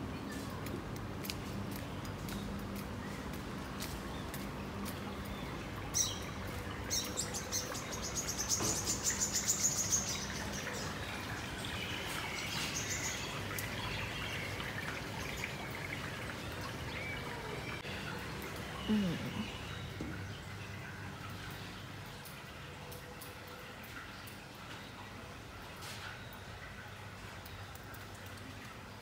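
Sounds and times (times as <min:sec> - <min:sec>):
birds chirping: 0:00.1 - 0:22.4.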